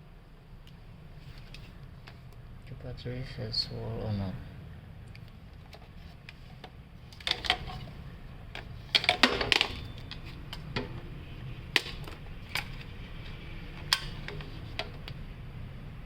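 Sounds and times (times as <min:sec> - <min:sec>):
steady low hum: 0:00.0 - 0:16.0
clatter of objects: 0:05.6 - 0:08.0, 0:08.6 - 0:11.1.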